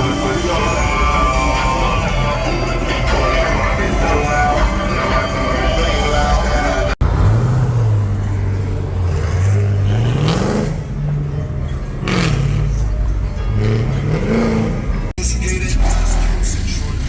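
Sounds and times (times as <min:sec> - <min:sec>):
music: 0:00.0 - 0:07.0, 0:11.4 - 0:17.0
car engine revving: 0:00.0 - 0:17.0.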